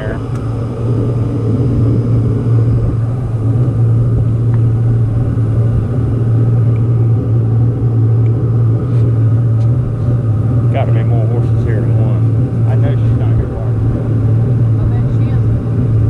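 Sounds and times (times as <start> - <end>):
boat motor running: 0.0 - 16.0.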